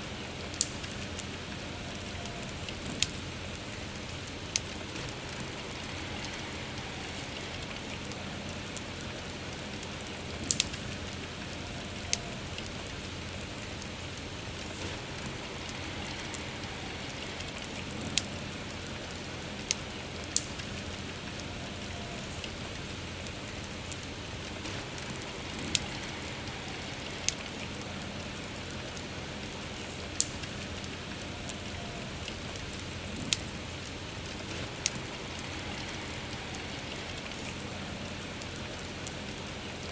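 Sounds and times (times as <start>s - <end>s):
campfire crackling and popping: 0.0s - 39.9s
soft rain falling: 0.0s - 39.9s.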